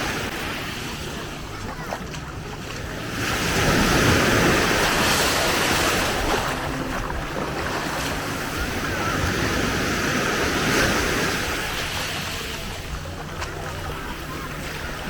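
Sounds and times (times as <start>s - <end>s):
sea waves washing onto beach: 0.0s - 15.0s.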